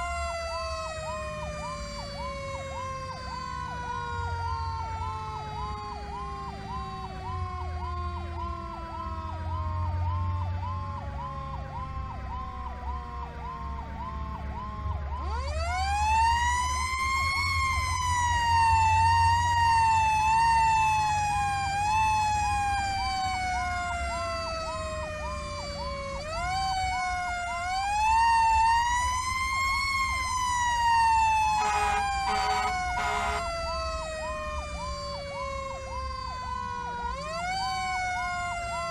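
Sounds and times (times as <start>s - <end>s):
electronic yelp siren: 0.0s - 38.9s
wailing siren: 0.0s - 38.9s
truck engine rumble: 23.6s - 35.9s
air horn blasts: 31.6s - 33.5s.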